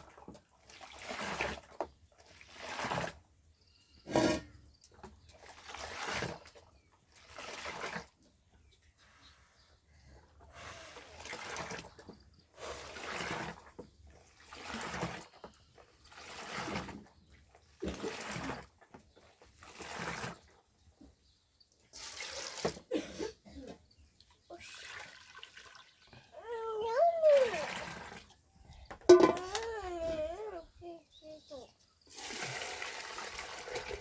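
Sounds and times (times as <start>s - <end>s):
water sloshing: 24.1s - 31.0s.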